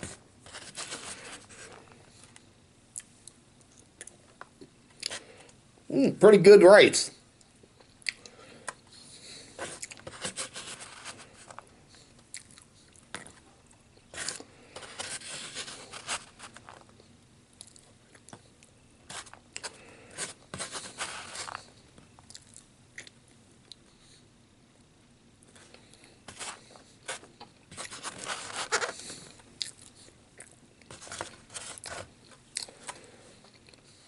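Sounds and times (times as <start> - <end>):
person chewing food: 7.7 - 23.9, 25.4 - 34.0.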